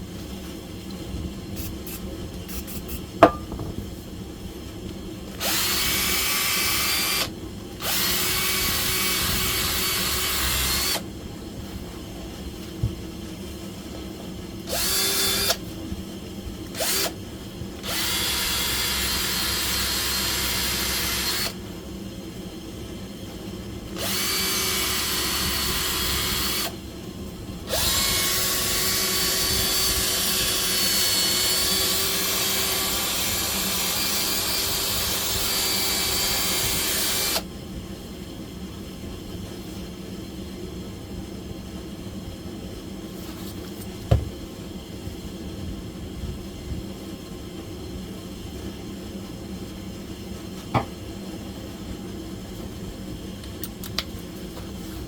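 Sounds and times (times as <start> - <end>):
electric power tool whining: 5.4 - 11.0, 14.7 - 15.6, 17.8 - 21.6, 27.7 - 37.4.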